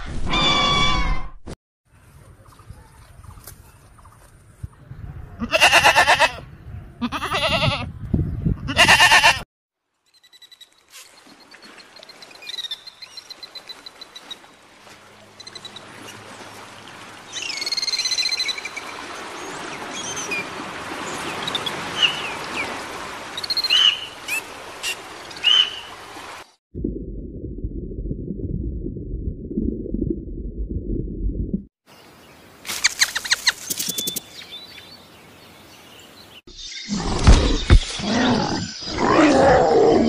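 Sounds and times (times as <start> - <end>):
goat bleating: 5.4 - 6.4, 7.0 - 7.9, 8.7 - 9.4
birds chirping and trilling: 15.3 - 26.0, 31.9 - 39.8
steady outdoor hiss: 31.9 - 36.9.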